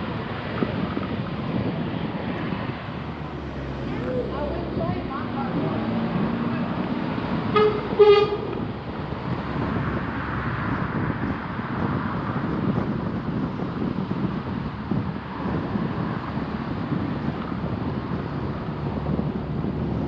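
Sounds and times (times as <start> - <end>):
car driving road noise: 0.0 - 20.0
vehicle horn toots: 7.5 - 8.7.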